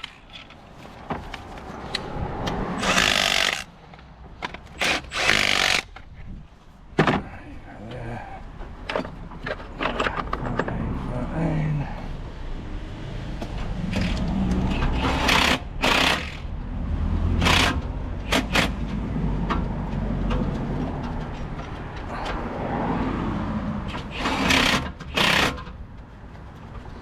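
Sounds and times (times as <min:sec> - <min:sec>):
impact gun rattling bursts: 0:02.8 - 0:03.7.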